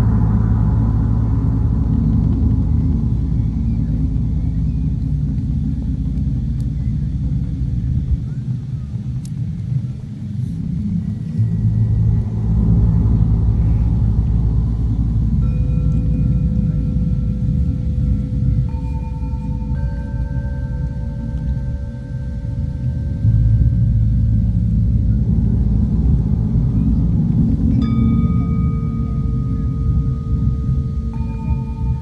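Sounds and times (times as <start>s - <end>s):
wind buffeting microphone: 0.0s - 32.0s
bell-like ringing tone: 11.2s - 24.2s, 26.8s - 32.0s.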